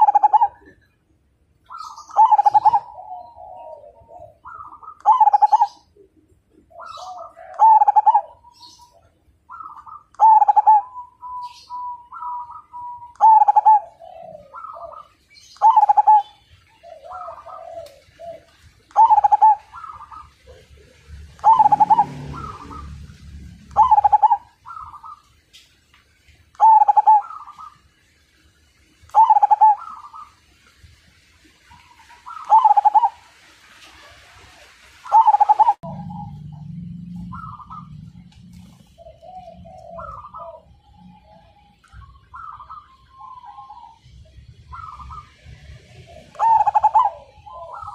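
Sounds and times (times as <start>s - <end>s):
dove cooing: 0.0s - 1.0s, 1.7s - 25.3s, 26.6s - 27.8s, 29.1s - 30.5s, 31.7s - 47.9s
low rumble: 35.8s - 42.2s.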